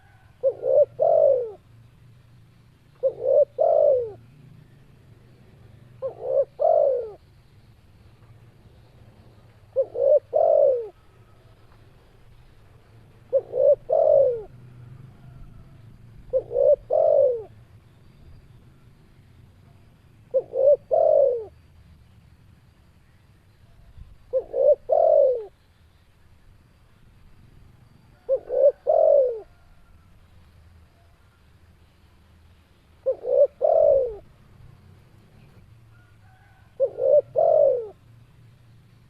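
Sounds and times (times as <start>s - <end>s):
dove cooing: 0.0s - 1.7s, 3.0s - 4.8s, 5.4s - 7.3s, 9.3s - 11.5s, 13.2s - 17.6s, 20.3s - 21.6s, 24.3s - 25.6s, 28.1s - 30.0s, 33.0s - 34.4s, 35.4s - 38.0s.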